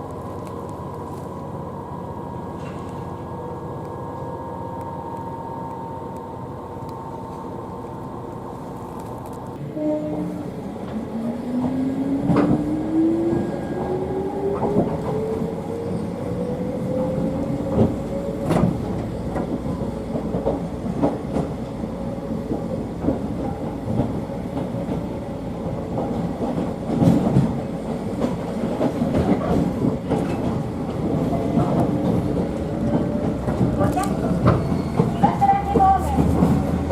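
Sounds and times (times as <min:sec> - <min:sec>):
wheels clicking over rail joints: 0:22.5 - 0:36.9.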